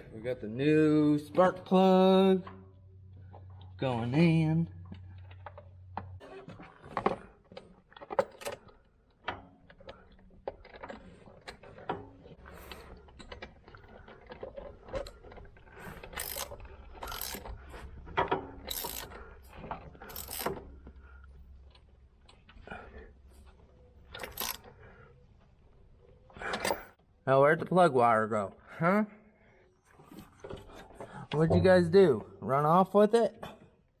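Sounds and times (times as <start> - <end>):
ratcheting strokes: 15.8 - 17.7, 18.4 - 20.7, 24.2 - 24.7
ratchet clicking: 16.0 - 17.5, 18.6 - 19.2, 20.0 - 20.6, 24.2 - 24.7.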